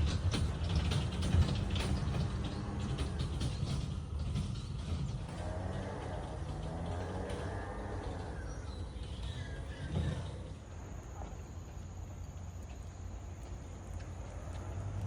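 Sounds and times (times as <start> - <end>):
low traffic rumble: 0.0 - 15.0.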